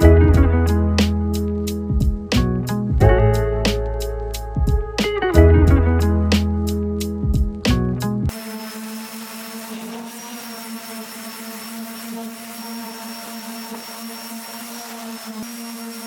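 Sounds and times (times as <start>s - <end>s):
power tool motor humming: 8.3s - 16.0s.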